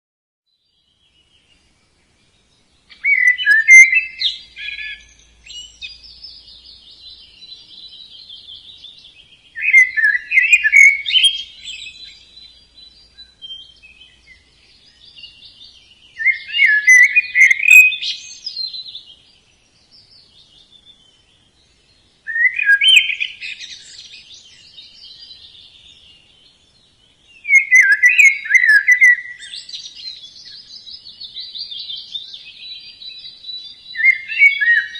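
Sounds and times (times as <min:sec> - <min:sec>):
budgerigars chirping: 0:02.9 - 0:06.3, 0:09.6 - 0:12.6, 0:16.2 - 0:18.7.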